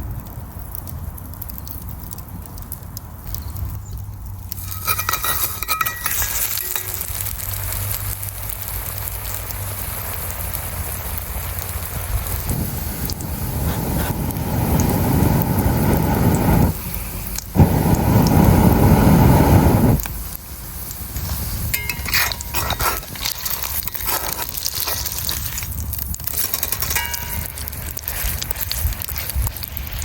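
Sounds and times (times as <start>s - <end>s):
campfire crackling and sizzling: 0.0s - 30.0s
loud low rushing noise: 12.0s - 16.8s.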